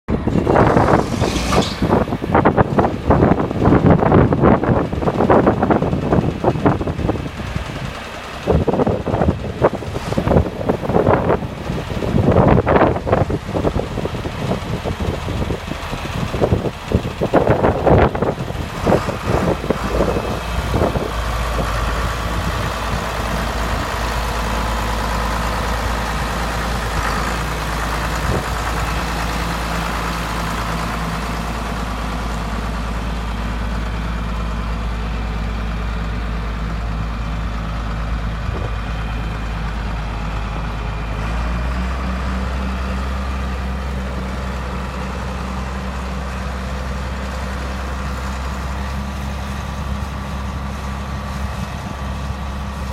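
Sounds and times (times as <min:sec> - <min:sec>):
engine knocks: 0:00.1 - 0:52.9
tractor diesel engine idling: 0:00.1 - 0:52.9.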